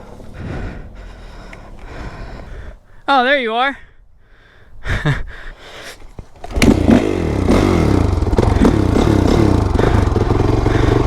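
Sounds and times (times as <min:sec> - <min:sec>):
motorcycle engine revving: 0:00.0 - 0:02.2, 0:06.2 - 0:11.0
kick-start clattering and scraping: 0:06.0 - 0:11.0.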